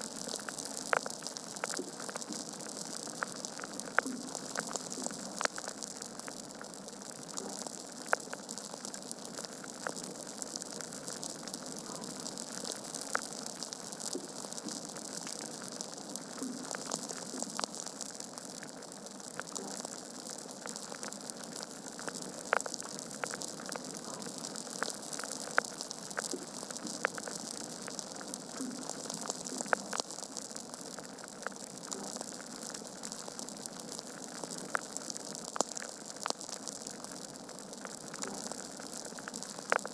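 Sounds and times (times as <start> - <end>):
log fire crackling: 0.0 - 39.9.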